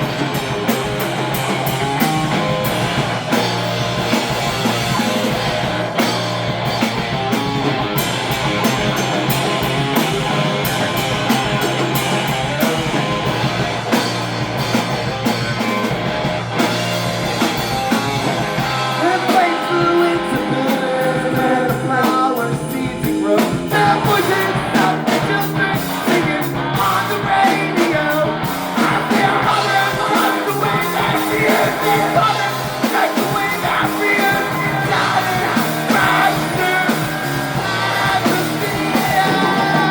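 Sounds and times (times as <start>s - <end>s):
live punk band playing: 0.0s - 39.9s
person singing: 18.9s - 39.9s.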